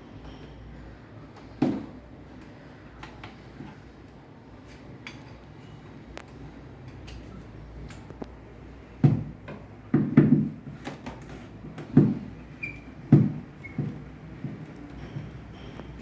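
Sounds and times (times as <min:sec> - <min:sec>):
dull knocks and thumps: 0:09.0 - 0:10.6, 0:11.7 - 0:12.4, 0:13.1 - 0:15.4.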